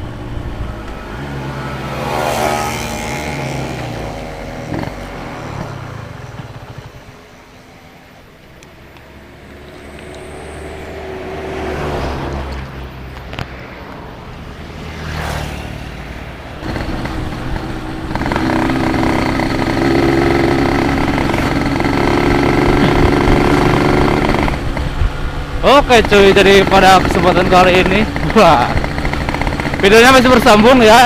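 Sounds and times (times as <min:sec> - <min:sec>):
two-stroke motorcycle engine running: 0:01.7 - 0:07.5, 0:16.6 - 0:31.0.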